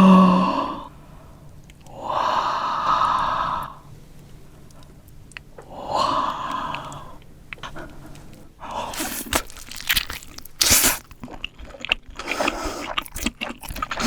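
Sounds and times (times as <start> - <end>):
person huffing heavy breaths: 8.8 - 9.9.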